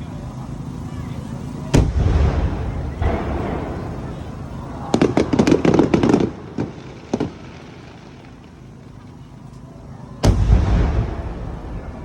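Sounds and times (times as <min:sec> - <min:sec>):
fireworks crackling and popping: 0:01.6 - 0:12.0
firework shell booming: 0:01.7 - 0:07.5, 0:10.2 - 0:12.0.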